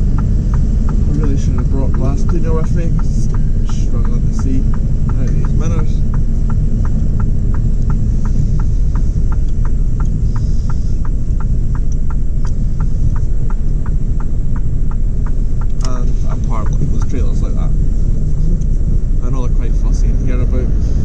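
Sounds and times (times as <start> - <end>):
indicator ticking: 0.0 - 20.6
truck diesel engine rumbling: 0.0 - 21.0.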